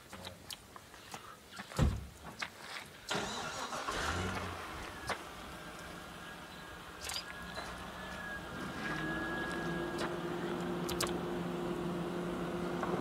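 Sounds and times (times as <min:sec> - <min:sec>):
engine idling: 0:03.1 - 0:13.0
sharp clicks: 0:10.8 - 0:11.2.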